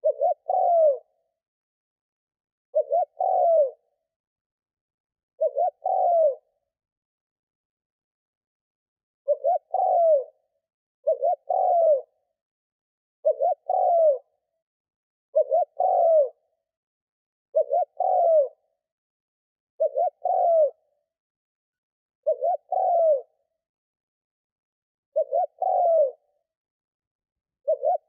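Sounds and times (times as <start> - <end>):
dove cooing: 0.0 - 1.2, 2.7 - 3.9, 5.4 - 6.6, 9.3 - 12.2, 13.2 - 14.4, 15.3 - 16.5, 17.5 - 18.7, 19.8 - 21.0, 22.2 - 23.4, 25.1 - 26.3, 27.6 - 28.0.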